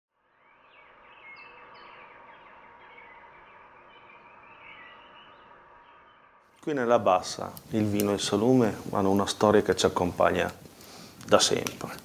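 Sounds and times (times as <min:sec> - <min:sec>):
birds chirping: 0:00.3 - 0:10.2
light steady hiss: 0:06.6 - 0:12.0.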